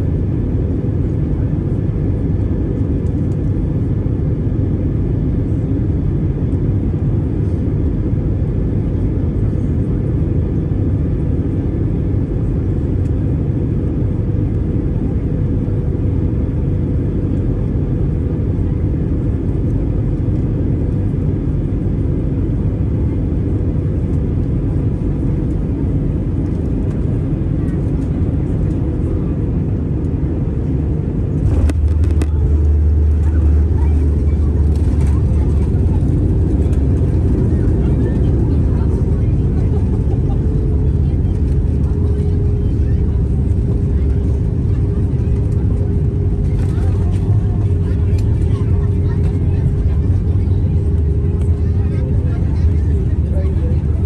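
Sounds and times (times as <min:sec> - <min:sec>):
car road and engine rumble: 0:30.3 - 0:44.7.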